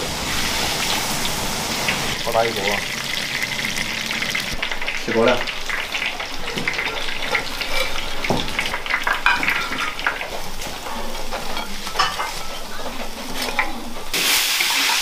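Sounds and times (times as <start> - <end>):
fish deep-frying in oil: 0.0 - 15.0
metal ladle scraping wok: 7.0 - 15.0.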